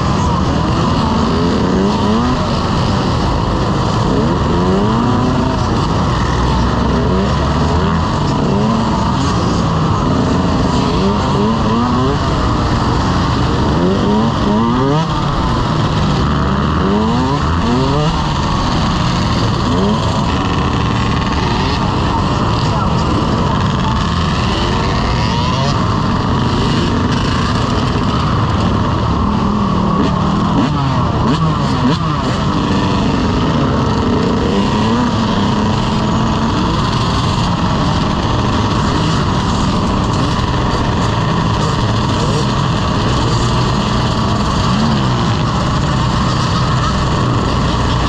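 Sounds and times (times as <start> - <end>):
dense rushing noise: 0.0 - 48.0
dirt bike engines revving: 0.0 - 48.0.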